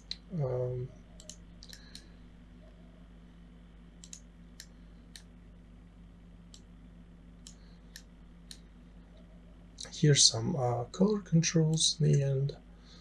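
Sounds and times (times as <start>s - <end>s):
computer mouse clicks: 0.0s - 0.3s, 1.2s - 2.1s, 4.0s - 5.3s, 7.4s - 9.3s
low electrical hum: 0.0s - 13.0s.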